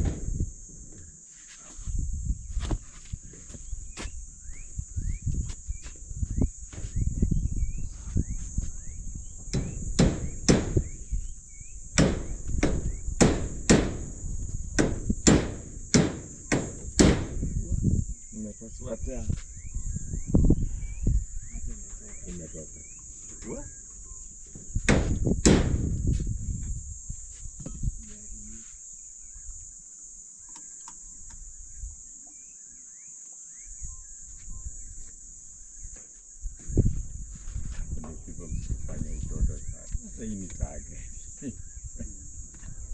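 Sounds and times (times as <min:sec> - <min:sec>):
high insect trill: 0:00.0 - 0:42.9
birds chirping: 0:03.3 - 0:25.3, 0:37.8 - 0:42.9
bird chirps: 0:03.5 - 0:13.2, 0:17.4 - 0:24.5, 0:30.4 - 0:37.0
hammer driving nails: 0:09.5 - 0:10.9, 0:12.0 - 0:14.2, 0:14.8 - 0:17.4, 0:24.8 - 0:25.9.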